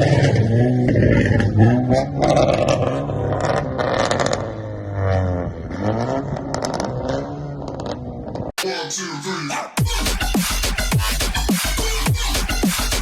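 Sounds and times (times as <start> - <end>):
car engine revving: 0.0 - 8.5.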